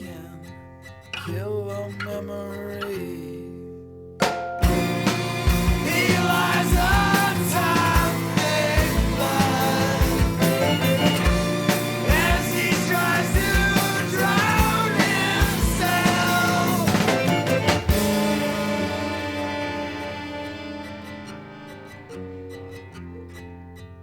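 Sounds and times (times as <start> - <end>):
noise rock music: 4.2 - 21.8.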